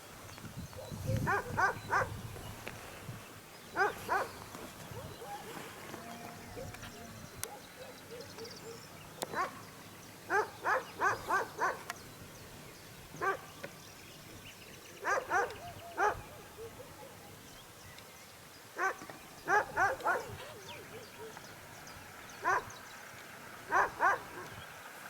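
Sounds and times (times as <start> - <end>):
dog barking: 0.8 - 2.2, 3.8 - 5.9, 6.6 - 9.6, 10.3 - 11.9, 13.2 - 13.5, 15.0 - 17.2, 18.8 - 21.4, 22.4 - 22.7, 23.7 - 24.6.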